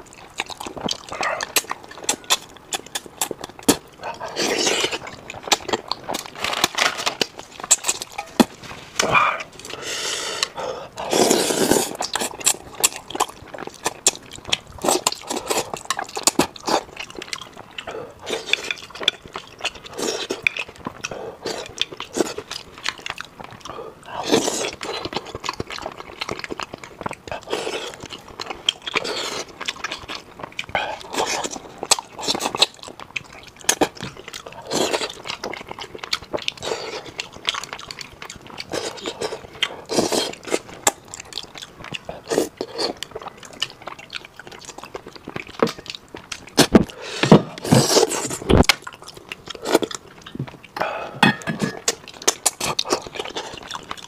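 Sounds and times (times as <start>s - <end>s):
wet chewing and lip-smacking: 0.0s - 54.0s.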